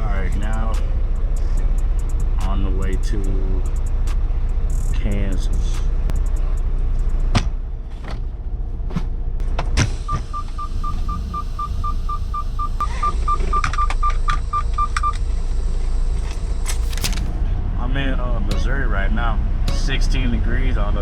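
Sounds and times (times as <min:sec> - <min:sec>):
truck engine rumble: 0:00.0 - 0:21.0
short electronic beeps: 0:10.1 - 0:15.2.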